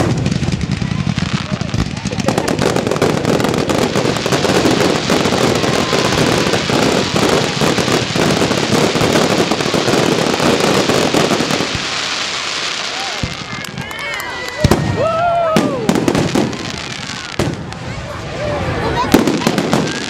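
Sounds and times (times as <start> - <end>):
fireworks crackling: 0.0 - 20.0.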